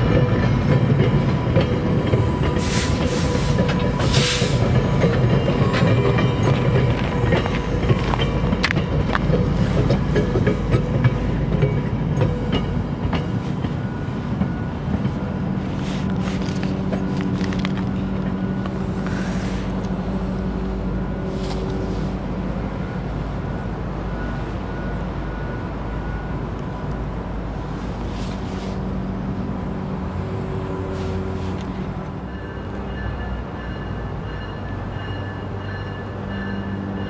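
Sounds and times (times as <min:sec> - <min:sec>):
wheels clicking over rail joints: 0:00.0 - 0:20.0
train rumble: 0:00.0 - 0:37.0.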